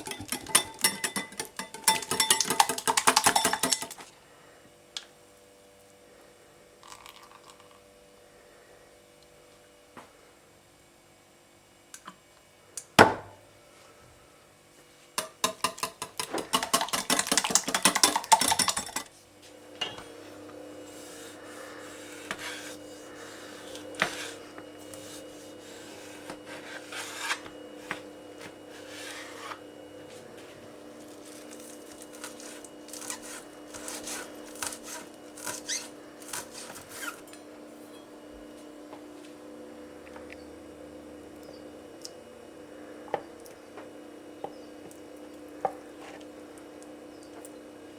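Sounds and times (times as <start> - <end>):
faint steady hum: 0.0 - 47.9
utensil scraping: 20.8 - 28.0, 28.7 - 29.6, 31.2 - 37.2.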